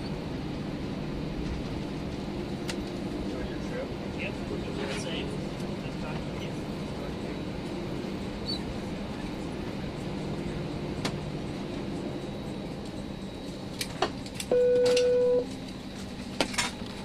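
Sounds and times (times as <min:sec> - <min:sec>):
steady low hum: 0:00.0 - 0:17.0
electronic beep: 0:14.5 - 0:15.4.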